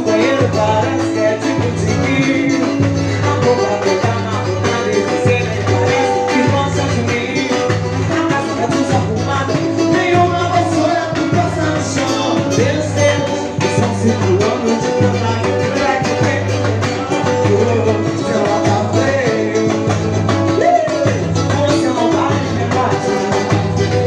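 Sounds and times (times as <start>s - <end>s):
latin band music: 0.0s - 24.0s.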